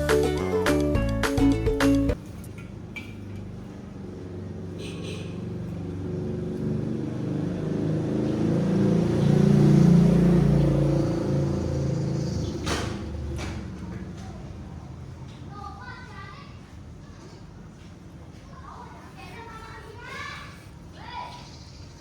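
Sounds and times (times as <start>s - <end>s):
vehicle engine passing by: 3.5s - 15.0s.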